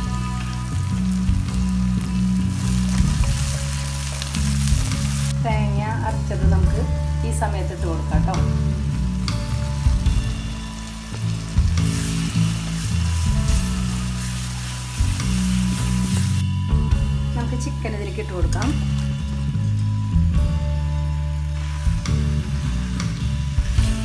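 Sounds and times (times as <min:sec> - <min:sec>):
background music: 0:00.0 - 0:24.0
vegetables sizzling in a wok: 0:00.0 - 0:24.0.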